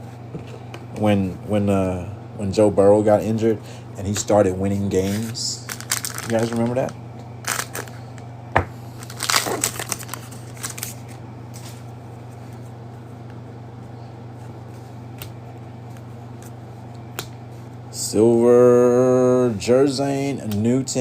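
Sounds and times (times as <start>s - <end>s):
steady low hum: 0.0s - 21.0s
plastic wrapper crinkling: 5.0s - 8.0s, 9.0s - 11.7s.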